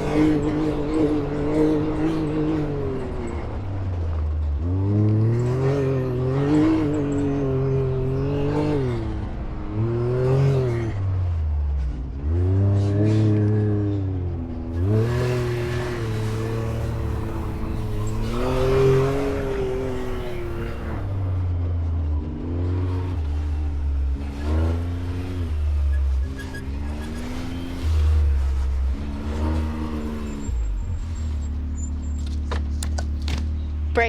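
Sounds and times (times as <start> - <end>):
off-road vehicle engine revving: 0.0 - 34.0.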